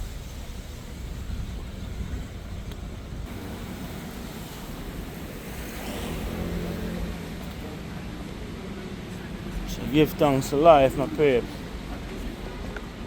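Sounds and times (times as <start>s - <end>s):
wind on microphone: 0.0s - 7.4s
passing traffic: 0.0s - 13.0s.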